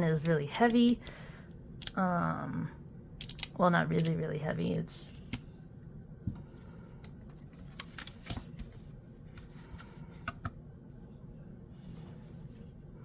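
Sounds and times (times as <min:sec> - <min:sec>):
metal fidget slider clicks and taps: 0:00.2 - 0:01.1.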